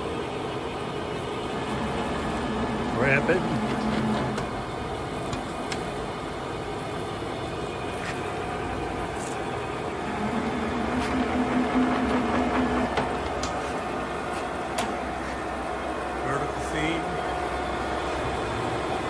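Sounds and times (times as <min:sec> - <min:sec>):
feed motor whine: 0:00.7 - 0:06.3, 0:07.9 - 0:19.0
low hum: 0:09.9 - 0:14.2.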